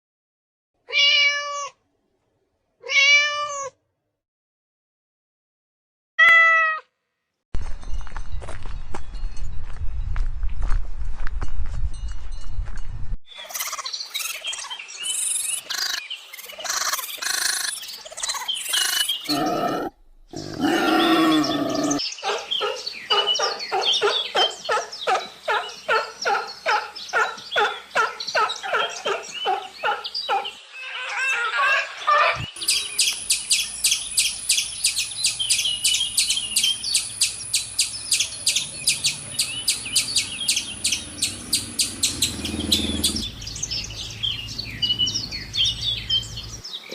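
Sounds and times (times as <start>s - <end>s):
high bird chirps: 13.3s - 24.7s, 32.4s - 46.9s
bird calls: 13.3s - 46.9s.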